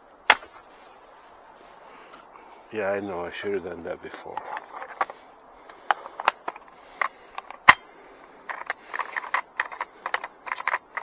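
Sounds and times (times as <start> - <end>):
chainsaw chain clicking and clattering: 4.4 - 11.0.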